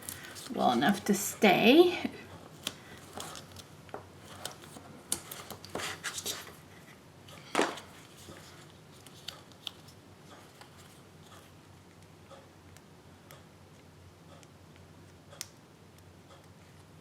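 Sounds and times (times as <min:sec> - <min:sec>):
paper taps and rustles: 0:02.6 - 0:06.6.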